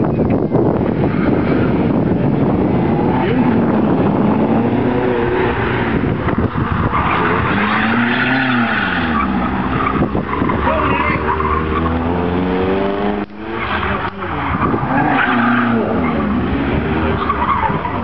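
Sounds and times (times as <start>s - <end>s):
car engine revving: 0.6s - 18.0s
tyres squealing: 6.9s - 12.3s.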